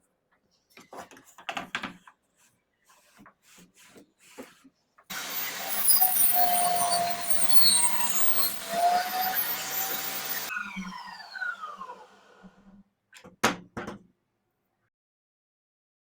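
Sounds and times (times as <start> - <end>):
table saw winding down: 5.1 - 12.7.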